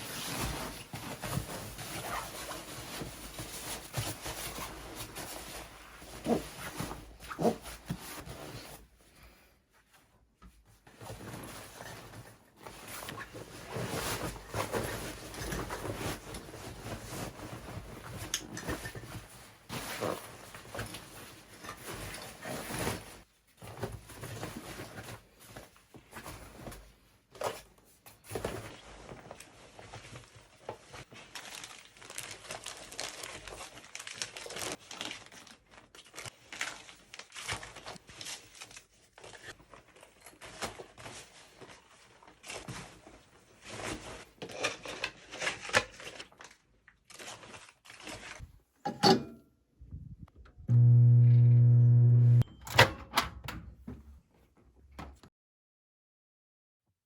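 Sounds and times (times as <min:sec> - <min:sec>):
crinkling and rustling: 0:00.0 - 0:49.2.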